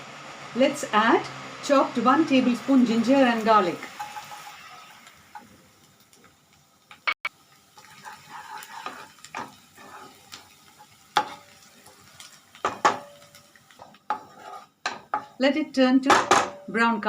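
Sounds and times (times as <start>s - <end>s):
garlic sizzling in oil: 0.0s - 17.0s
spoon stirring in pot: 7.8s - 10.2s, 13.8s - 15.4s.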